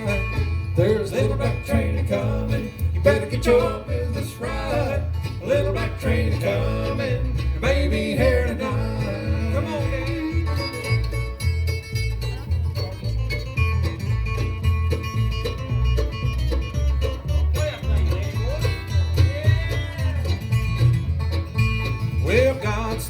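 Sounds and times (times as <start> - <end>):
acoustic guitar lead: 0.0 - 23.0
banjo: 0.0 - 23.0
bass line: 0.0 - 23.0.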